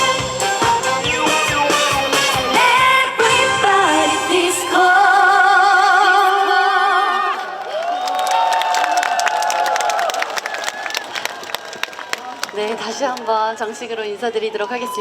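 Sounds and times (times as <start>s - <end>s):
pop backing track: 0.0s - 5.5s
woman singing with vibrato: 2.1s - 7.6s.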